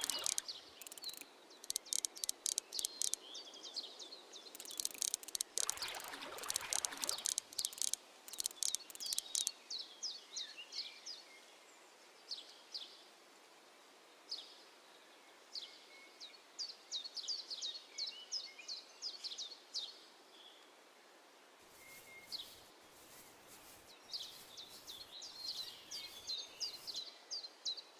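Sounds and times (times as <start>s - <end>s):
irregular crackling noise: 0.0s - 3.2s, 4.6s - 9.5s
small bird chirping: 0.0s - 3.5s, 4.4s - 9.6s, 21.8s - 27.1s.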